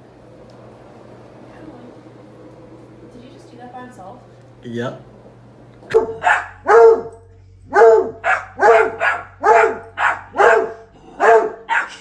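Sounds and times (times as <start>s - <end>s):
dog barking: 5.9s - 12.0s.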